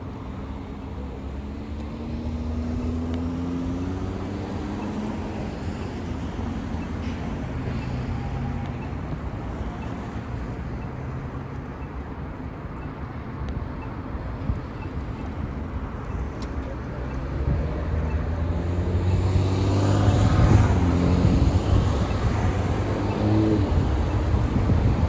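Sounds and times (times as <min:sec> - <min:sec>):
traffic noise: 0:00.0 - 0:25.0
bus engine accelerating: 0:14.0 - 0:25.0.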